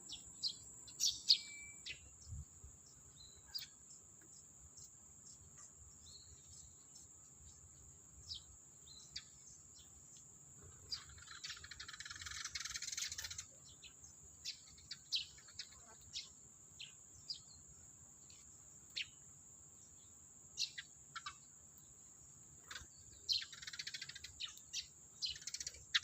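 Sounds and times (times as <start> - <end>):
bird chirps: 0.0 - 19.2, 19.8 - 22.0, 22.6 - 26.0
high-pitched insect drone: 11.0 - 13.5.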